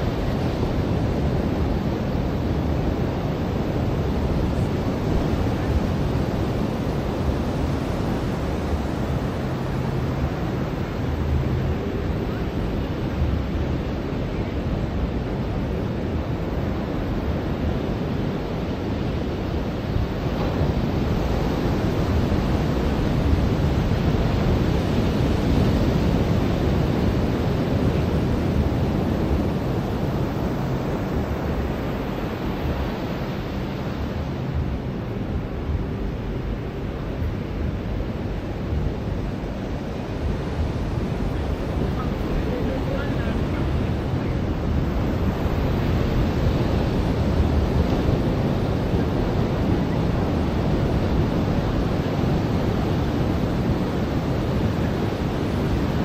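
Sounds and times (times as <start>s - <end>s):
ocean surf on beach: 0.0s - 56.0s
wind on microphone: 0.0s - 56.0s.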